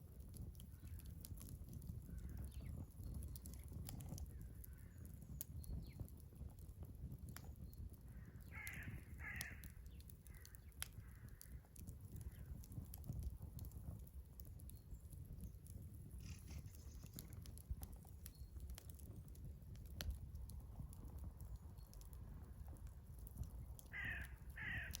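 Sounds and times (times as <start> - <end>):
wind rumble on microphone: 0.0 - 25.0
wood fire crackling and popping: 0.0 - 25.0
crow cawing: 8.5 - 11.5, 23.9 - 25.0.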